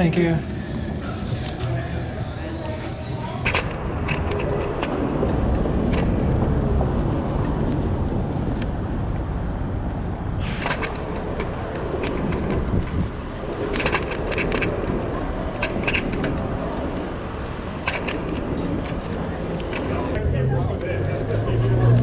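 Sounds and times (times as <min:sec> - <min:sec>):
city street traffic: 0:00.0 - 0:22.0
clicks and rattles: 0:03.4 - 0:06.3, 0:10.6 - 0:20.2.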